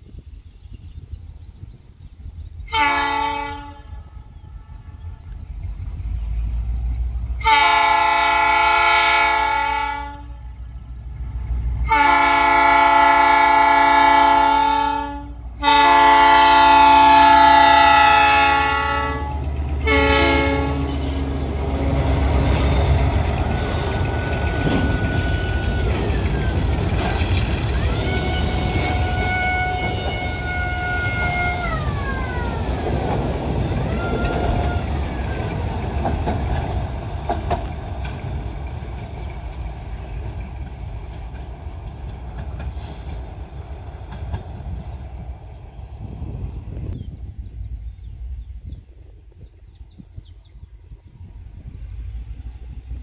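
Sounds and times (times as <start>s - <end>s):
locomotive horn blasts: 2.7s - 5.2s, 7.4s - 10.8s, 11.8s - 22.0s, 24.1s - 26.2s, 27.8s - 32.6s, 33.8s - 35.4s
diesel engine rumbling: 17.4s - 49.0s
freight cars high whine: 19.2s - 47.0s.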